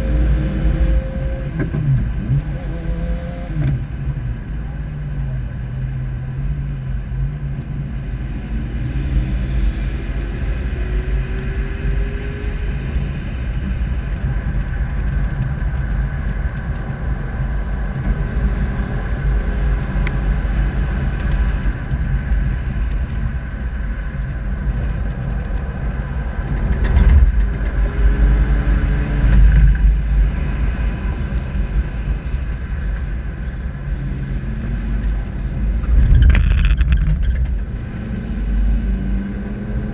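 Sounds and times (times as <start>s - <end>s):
engine and road rumble: 0.0s - 39.9s.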